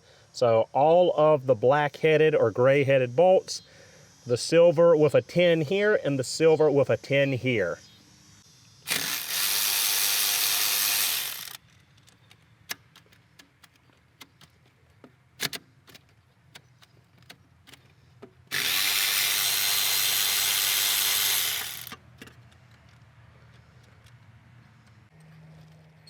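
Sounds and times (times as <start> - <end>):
power tool whirring: 8.8 - 11.6, 18.5 - 22.0.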